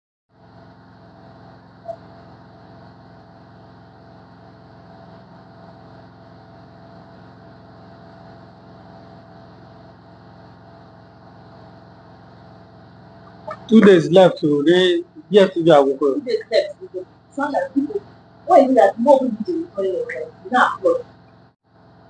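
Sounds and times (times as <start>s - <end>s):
steady mechanical hum: 0.4s - 22.0s.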